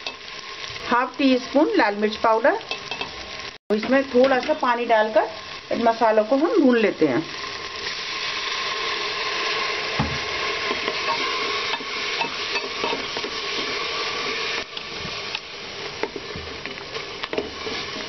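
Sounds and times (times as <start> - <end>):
masala sizzling in oil: 0.0 - 18.0
wooden spatula scraping and knocking: 10.0 - 15.2, 16.0 - 18.0.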